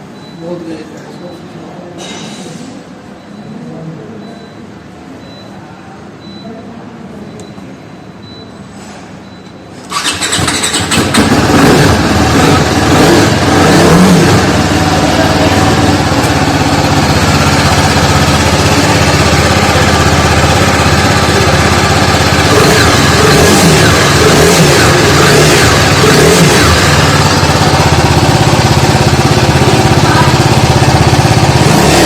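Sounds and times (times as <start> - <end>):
motorcycle engine starting and running: 9.8 - 32.0.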